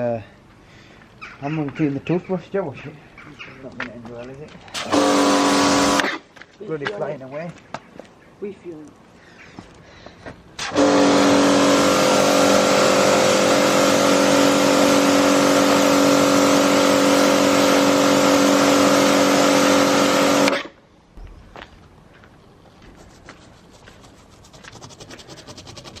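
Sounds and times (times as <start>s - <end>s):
pressure washer motor hum: 4.7s - 6.2s, 10.6s - 20.7s.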